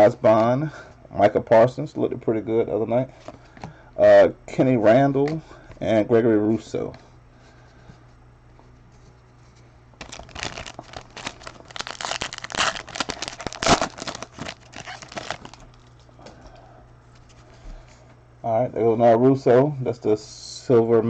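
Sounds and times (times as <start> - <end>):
plastic wrapper crackling: 10.0 - 16.1.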